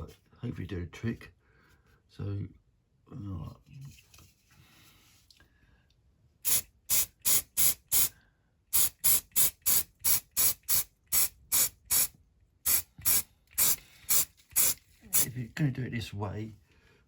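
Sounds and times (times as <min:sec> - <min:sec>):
spray paint can hissing: 0:06.4 - 0:08.1, 0:08.7 - 0:15.3.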